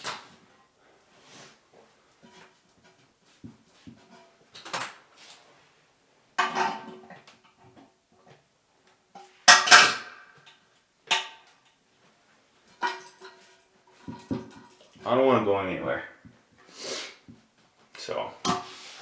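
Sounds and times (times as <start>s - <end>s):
metal tools clinking and clattering: 9.2s - 11.8s, 12.6s - 15.0s.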